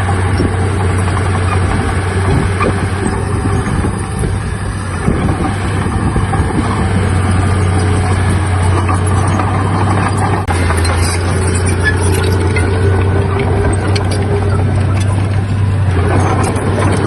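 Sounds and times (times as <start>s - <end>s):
heavy diesel machinery running: 0.0s - 17.0s.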